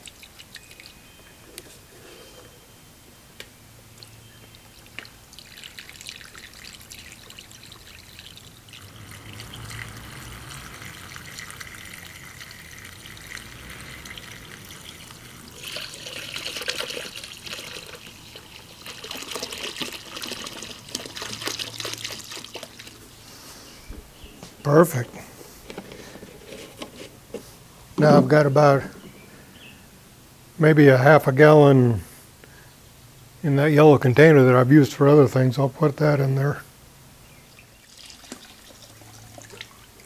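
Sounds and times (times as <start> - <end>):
liquid trickling into container: 0.0 - 1.5, 4.0 - 23.3, 37.6 - 40.0.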